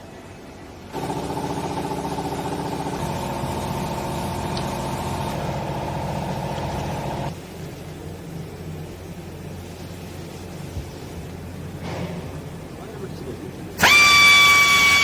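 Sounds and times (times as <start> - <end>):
machine running hum: 0.0 - 7.4
hydraulic pump whine: 0.9 - 7.3, 13.8 - 15.0.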